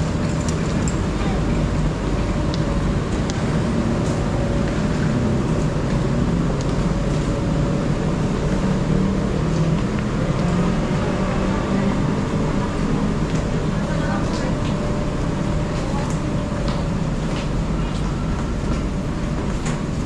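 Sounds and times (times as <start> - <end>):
train engine idling: 0.0 - 20.0.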